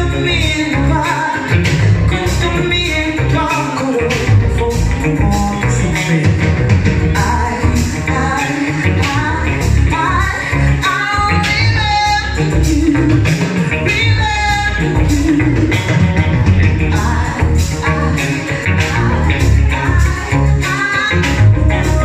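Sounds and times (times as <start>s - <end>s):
live band playing: 0.0s - 22.0s
singer holding wavering notes: 7.1s - 22.0s.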